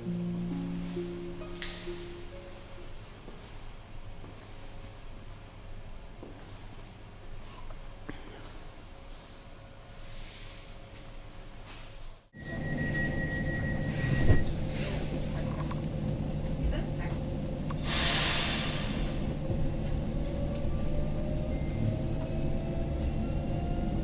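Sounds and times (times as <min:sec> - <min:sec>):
train running gear rumbling: 0:12.4 - 0:24.0
air hiss: 0:17.8 - 0:19.4.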